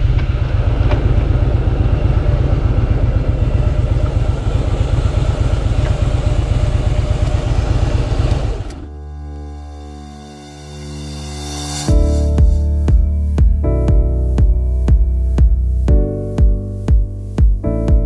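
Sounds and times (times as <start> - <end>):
motorcycle engine running: 0.0 - 9.0, 11.9 - 18.0
background music: 8.9 - 18.0.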